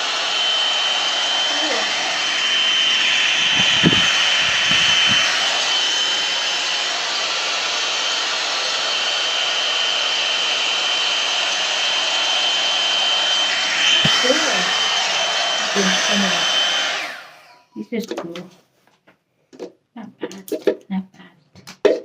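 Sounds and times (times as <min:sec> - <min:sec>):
hot-air dryer brush running: 0:00.0 - 0:18.2
low thumps: 0:03.3 - 0:05.4.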